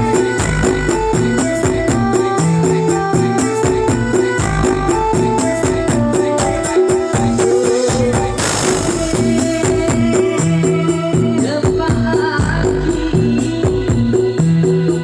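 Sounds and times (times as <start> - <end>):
fast beat music over sound system: 0.0 - 15.0
hissing sweep: 7.6 - 10.9.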